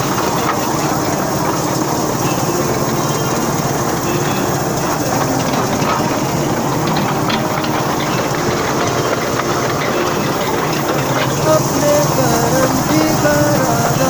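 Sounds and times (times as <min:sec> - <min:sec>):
toy train running on rails: 0:00.0 - 0:14.0.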